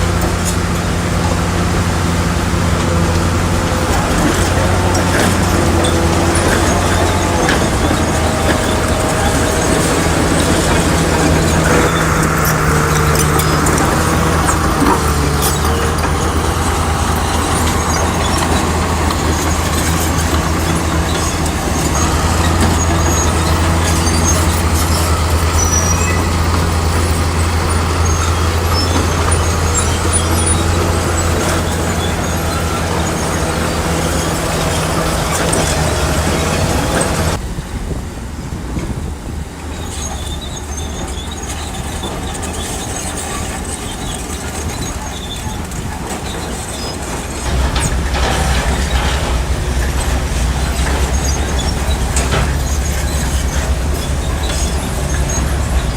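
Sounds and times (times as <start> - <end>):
heavy diesel engine under load: 0.0 - 55.9
quieter thinner engine: 47.0 - 55.9.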